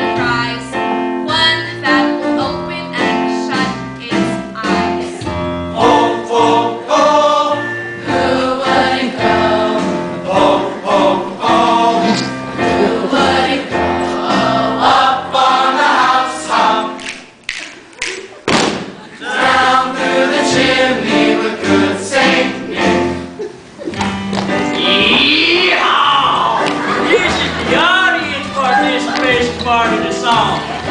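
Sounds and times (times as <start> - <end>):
piano accompaniment: 0.0 - 17.4, 18.7 - 30.9
choir singing: 5.8 - 17.0, 19.0 - 23.2, 24.6 - 30.9.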